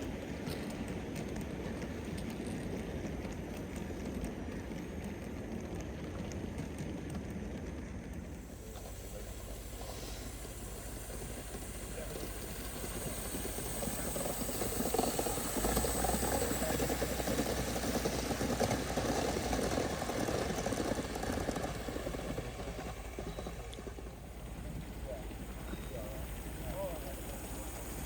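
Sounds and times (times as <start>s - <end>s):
model steam locomotive hissing: 8.3s - 28.0s.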